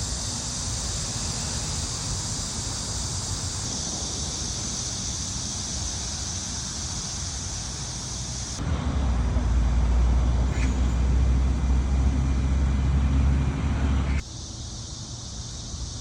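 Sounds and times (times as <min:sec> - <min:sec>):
steady high hiss: 0:00.0 - 0:08.7, 0:14.0 - 0:16.0
vehicle engine idling hum: 0:00.0 - 0:14.7.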